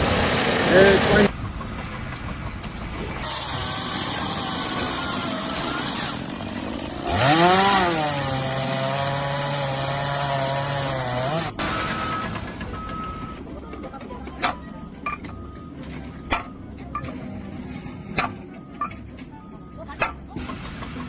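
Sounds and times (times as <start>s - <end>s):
power tool cutting hiss: 3.2s - 6.3s.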